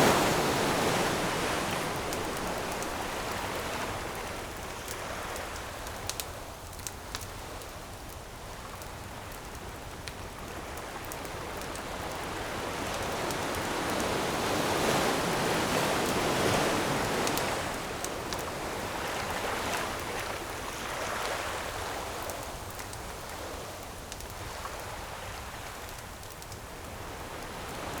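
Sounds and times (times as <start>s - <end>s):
ocean wave rushing in: 0.0s - 4.1s
campfire crackles: 0.0s - 28.0s.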